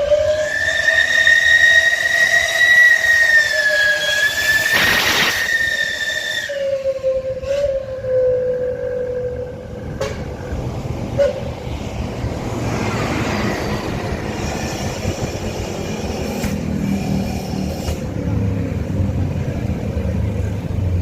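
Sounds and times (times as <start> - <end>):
rumbling noise: 9.2 - 17.2.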